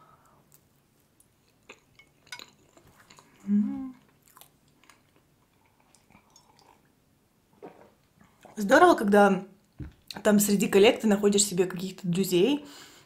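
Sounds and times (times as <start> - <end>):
chewing with wet mouth clicks: 0.5 - 3.4, 4.0 - 6.9
person humming: 3.4 - 4.1.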